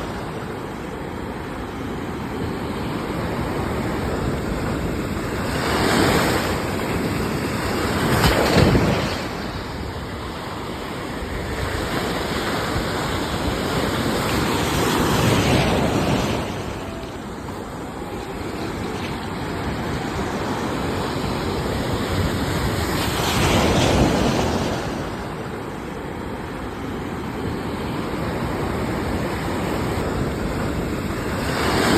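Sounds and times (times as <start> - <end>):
waves breaking: 0.0 - 31.9.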